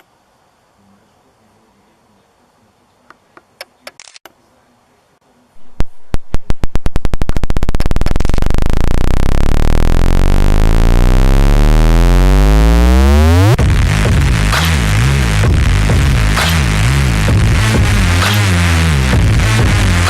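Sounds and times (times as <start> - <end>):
synthesizer pulsing rising drone: 7.0 - 20.0.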